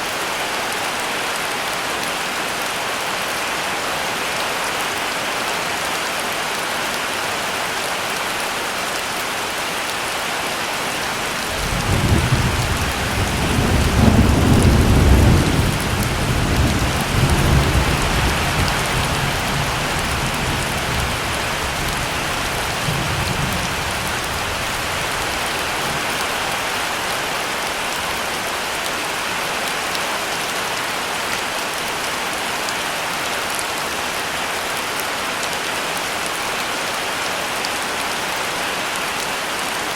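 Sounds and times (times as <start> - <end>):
heavy rain falling: 0.0 - 39.9
thunder rolling: 11.5 - 18.6.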